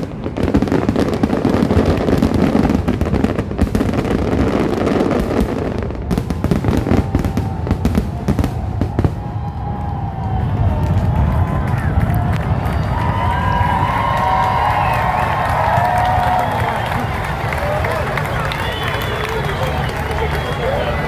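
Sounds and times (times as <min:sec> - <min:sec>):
fireworks bursting and crackling: 0:00.0 - 0:21.0.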